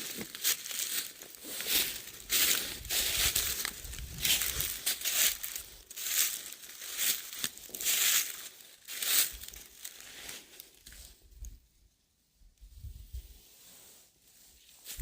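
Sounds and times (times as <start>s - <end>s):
footsteps crunching dry leaves: 0.0s - 11.2s, 14.7s - 15.0s.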